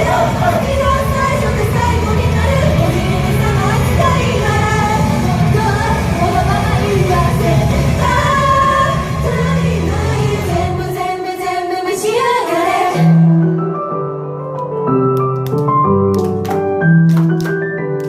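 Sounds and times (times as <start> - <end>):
pop song with singing: 0.0 - 13.6.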